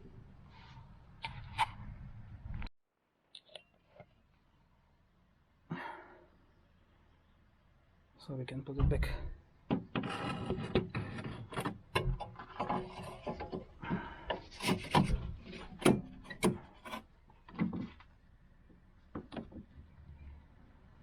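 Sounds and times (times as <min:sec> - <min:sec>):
plastic parts clicking and knocking: 0:18.7 - 0:19.8.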